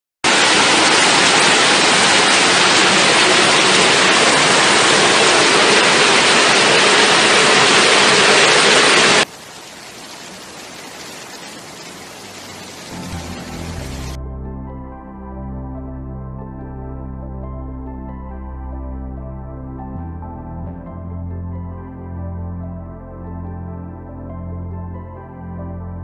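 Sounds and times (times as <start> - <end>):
torrential rain pouring: 0.2 - 14.2
running water: 0.3 - 14.2.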